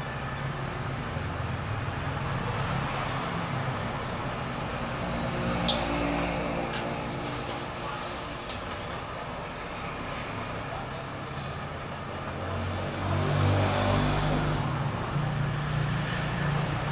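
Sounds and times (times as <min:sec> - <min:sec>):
street traffic: 0:00.0 - 0:16.9
vehicle engine running nearby: 0:00.0 - 0:16.9.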